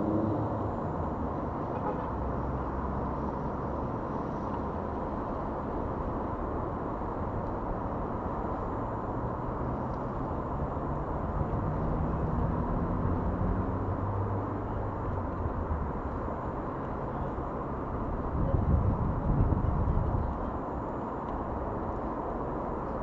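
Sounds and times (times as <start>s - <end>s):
road traffic rumble: 0.0s - 23.0s
vehicle engine: 0.0s - 23.0s.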